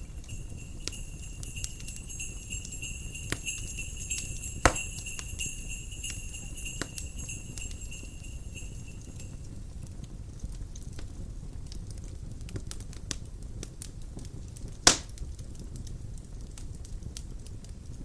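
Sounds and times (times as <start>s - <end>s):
jingle bells ringing: 0.0s - 9.6s
low rumble of fire and wind: 0.0s - 18.0s
wood fire crackling and popping: 0.0s - 18.0s.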